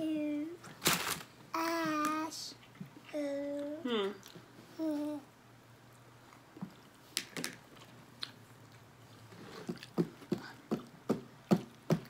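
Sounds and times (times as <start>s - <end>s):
chewing food with wet clicks: 7.7s - 8.9s.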